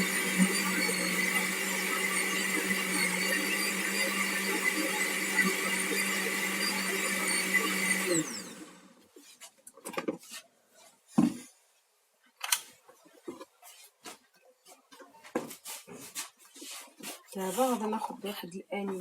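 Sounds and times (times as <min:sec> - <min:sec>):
electric mixer whining: 0:00.0 - 0:09.0.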